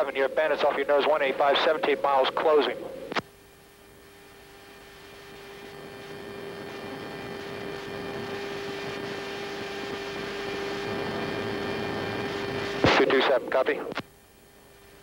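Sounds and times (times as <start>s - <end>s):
electrical hum: 0.0s - 15.0s
radio click: 3.1s - 3.3s, 12.8s - 14.1s.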